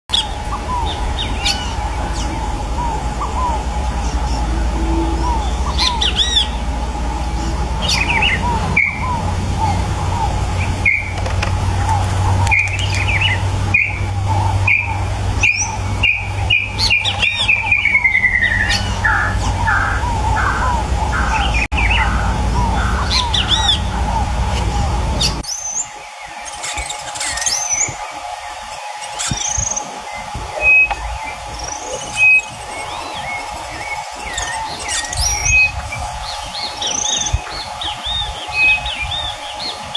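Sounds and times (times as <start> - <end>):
whistled notes sliding down: 0.1 - 11.2, 29.0 - 39.9
steady low rumble: 0.1 - 26.4, 29.4 - 39.9
wild birds calling and singing: 0.1 - 39.9.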